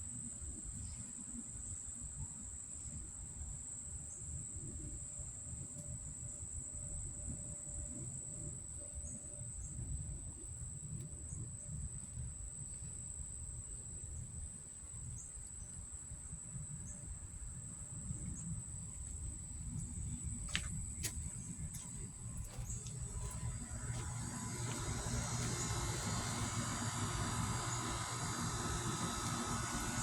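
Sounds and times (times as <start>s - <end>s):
crickets calling: 16.8s - 30.0s.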